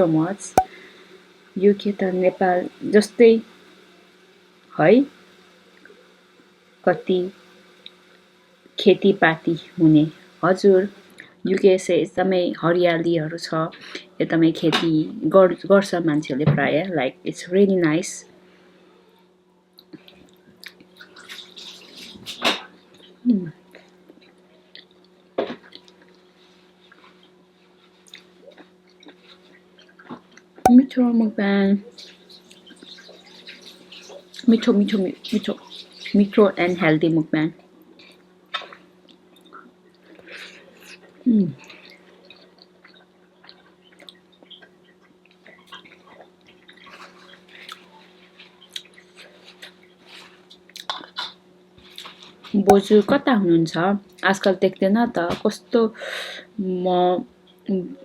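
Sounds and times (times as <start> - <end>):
chewing and wet mouth sounds: 26.8 - 30.6, 37.9 - 52.6.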